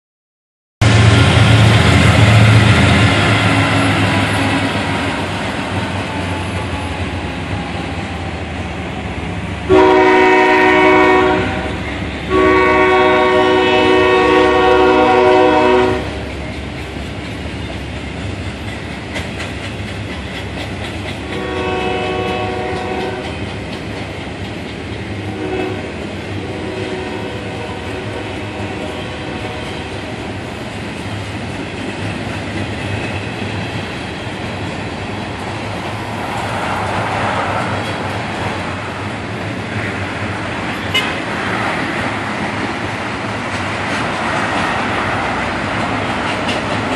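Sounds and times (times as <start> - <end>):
diesel locomotives rumbling: 0.8 - 46.9
train horn blasts: 9.7 - 16.3, 21.2 - 23.5, 25.2 - 30.2, 40.9 - 41.2
train wheel clatter: 16.2 - 26.4, 28.8 - 46.9.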